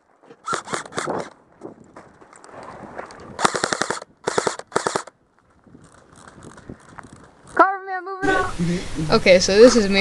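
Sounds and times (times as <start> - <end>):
airsoft guns firing rapid bursts: 3.4 - 5.1.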